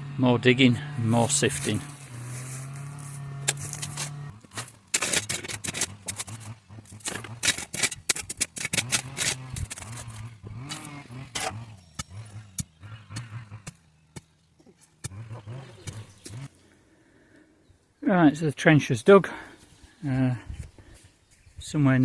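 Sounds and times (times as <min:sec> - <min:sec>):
shovel digging stony soil: 0:01.2 - 0:16.5.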